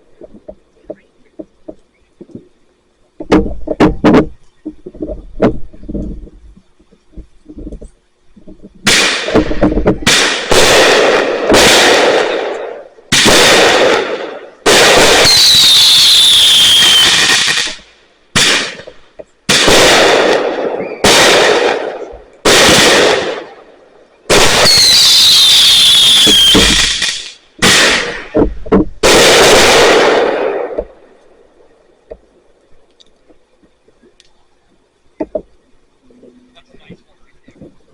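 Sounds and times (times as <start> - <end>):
fireworks bangs: 3.2 - 34.2
firework falling whistle: 14.7 - 17.8, 19.6 - 23.5, 24.3 - 28.4.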